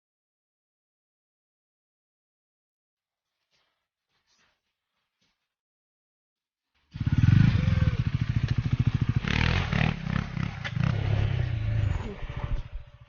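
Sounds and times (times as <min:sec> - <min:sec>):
motorcycle engine running: 0:06.9 - 0:13.0.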